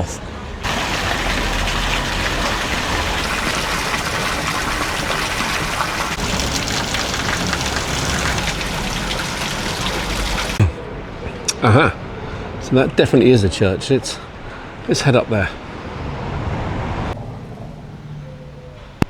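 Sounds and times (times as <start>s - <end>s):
fountain water splashing: 0.6s - 10.7s.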